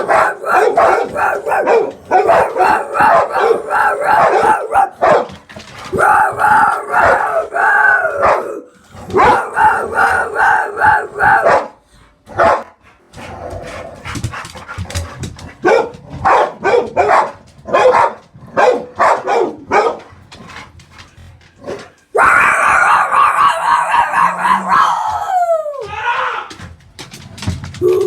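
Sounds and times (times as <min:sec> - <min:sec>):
dog howling: 0:00.0 - 0:05.2, 0:05.9 - 0:11.7, 0:22.1 - 0:26.6, 0:27.8 - 0:28.0
dog barking: 0:00.0 - 0:05.4, 0:06.0 - 0:12.8, 0:15.6 - 0:20.1
dog yapping: 0:00.0 - 0:11.7, 0:22.2 - 0:26.3.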